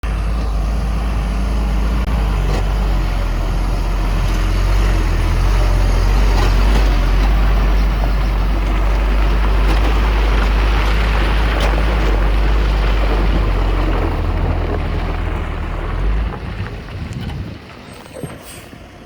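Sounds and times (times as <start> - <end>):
diesel engine deep rumble: 0.0 - 19.0.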